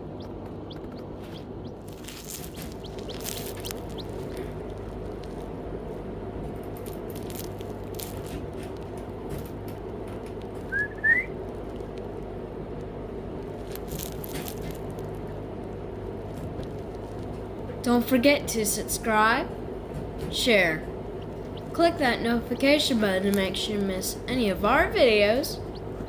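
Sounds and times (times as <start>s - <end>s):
chick peeping: 0.0s - 5.4s, 20.3s - 26.0s
low background hum: 0.0s - 26.0s.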